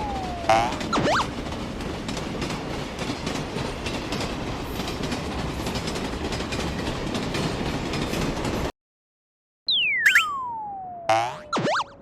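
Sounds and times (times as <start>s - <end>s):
train running along track: 0.0s - 8.7s.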